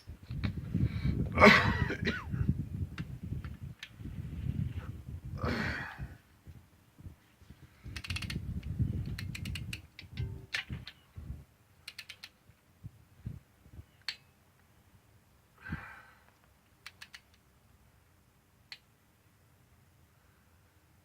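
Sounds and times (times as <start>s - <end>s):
ratchet wrench clicking: 7.9s - 10.7s, 11.8s - 12.3s, 16.8s - 17.4s
single metal clicks: 11.8s - 12.4s, 14.0s - 14.3s, 16.8s - 17.4s.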